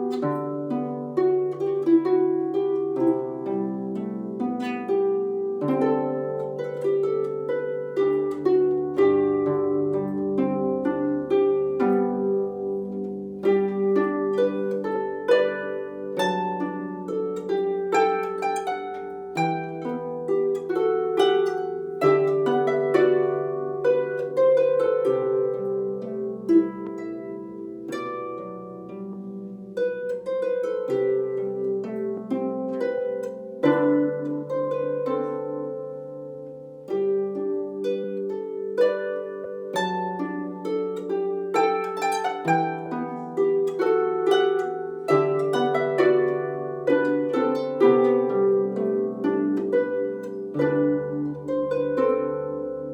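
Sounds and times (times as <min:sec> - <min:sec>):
harp playing: 0:00.0 - 0:52.9.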